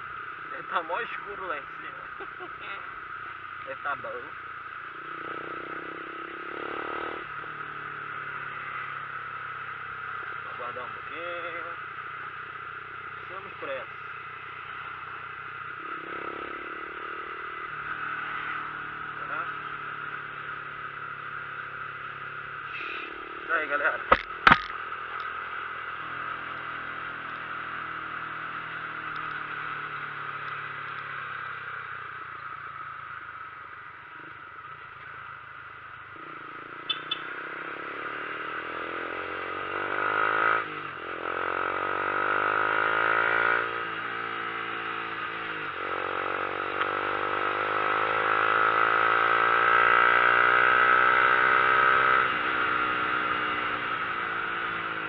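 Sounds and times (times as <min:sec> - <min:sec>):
wind and road noise: 0:00.0 - 0:55.0
vehicle engine accelerating: 0:05.0 - 0:09.4, 0:36.1 - 0:55.0.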